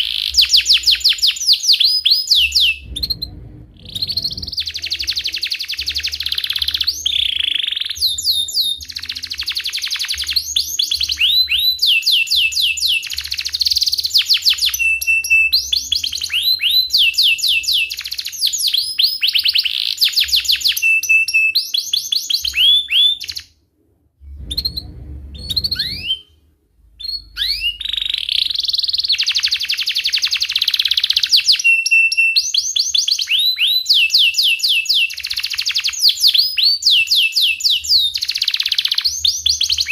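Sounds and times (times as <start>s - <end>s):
canary singing trills: 0.0s - 23.5s, 24.4s - 26.4s.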